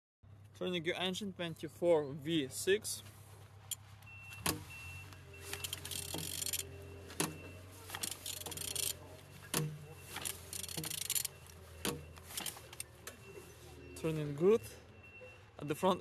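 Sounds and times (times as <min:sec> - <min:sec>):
metallic clicks of engine turning: 0:03.6 - 0:13.4.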